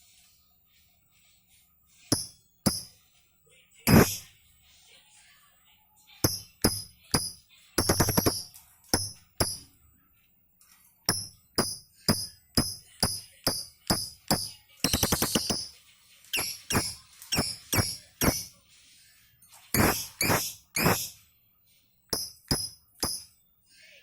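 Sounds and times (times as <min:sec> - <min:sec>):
bird chirping and chattering: 0:12.0 - 0:18.6, 0:19.8 - 0:21.2.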